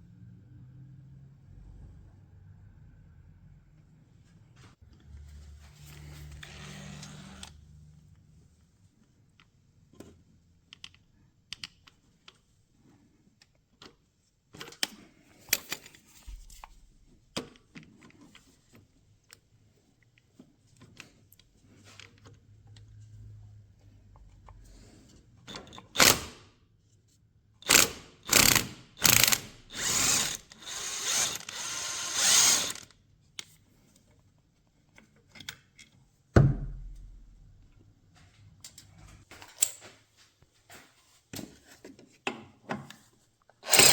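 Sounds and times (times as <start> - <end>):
ratchet wrench clicking: 27.6 - 32.9, 43.7 - 43.9
tools and metal parts clinking: 43.6 - 43.9.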